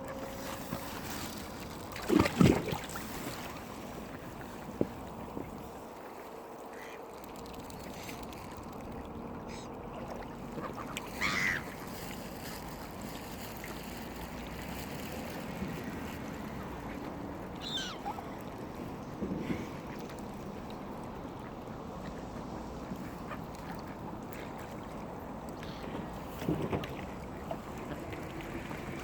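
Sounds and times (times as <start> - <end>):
wind: 0.0 - 29.0
waterbird calling: 6.6 - 8.4, 9.3 - 12.2, 16.4 - 18.7, 21.3 - 26.4.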